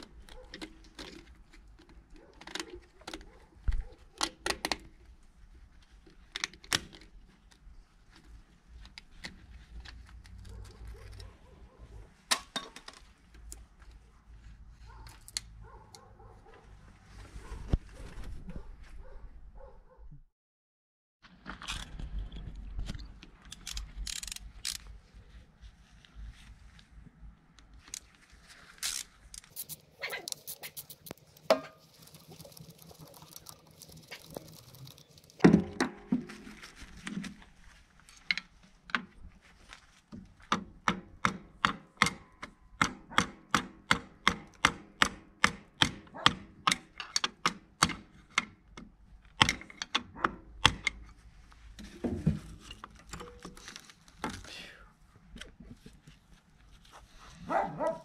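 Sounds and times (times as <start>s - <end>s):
metal tools clicking and knocking: 46.7s - 51.1s.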